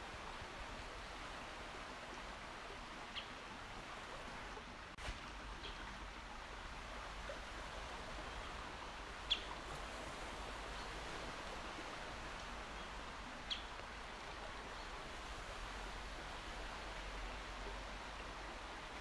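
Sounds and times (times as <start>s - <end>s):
calm sea washing: 0.0s - 19.0s.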